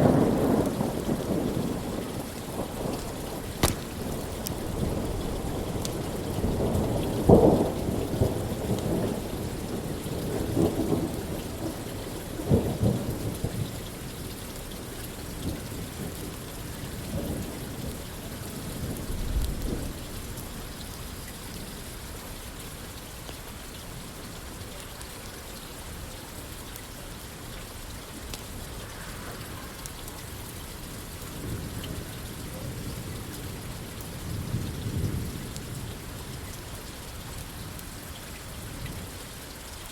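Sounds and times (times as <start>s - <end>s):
thunder rumbling: 0.0s - 9.3s
steady rain falling: 0.0s - 39.9s.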